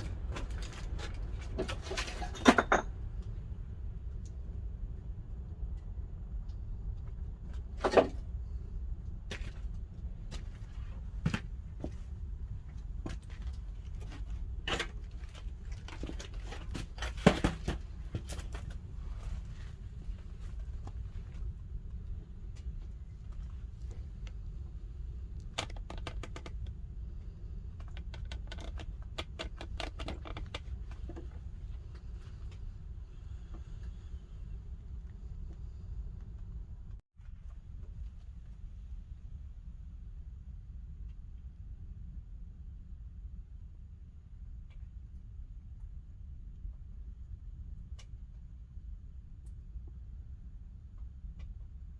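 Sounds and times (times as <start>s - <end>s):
low steady rumble: 0.0s - 51.9s.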